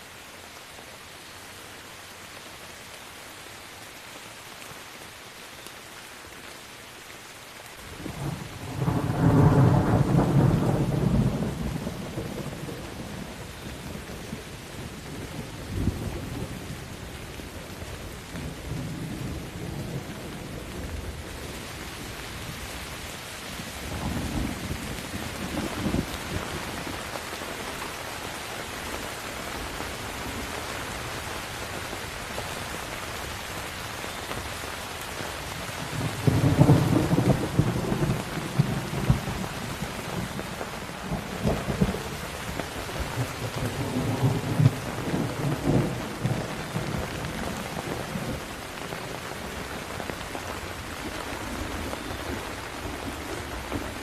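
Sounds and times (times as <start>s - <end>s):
rain hissing: 0.0s - 54.0s
rolling thunder rumble: 8.0s - 16.6s, 35.8s - 49.6s.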